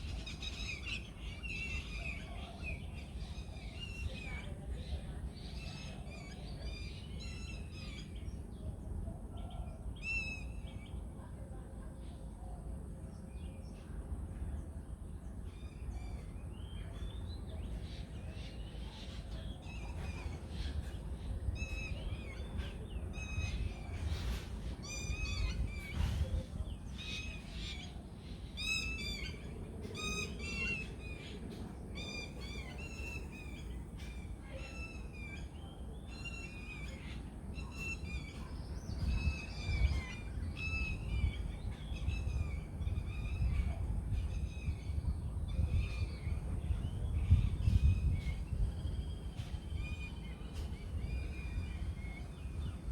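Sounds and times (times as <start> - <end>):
low outdoor rumble: 0.0 - 52.9
songbirds chirping and singing: 14.6 - 52.9.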